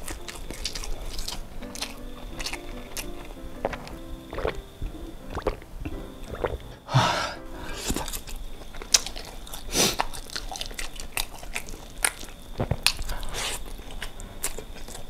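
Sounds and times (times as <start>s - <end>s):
wet mouth clicks and smacks: 0.0s - 6.7s
close chewing: 0.0s - 6.8s, 7.8s - 15.0s
breathy burst of noise: 6.5s - 8.3s.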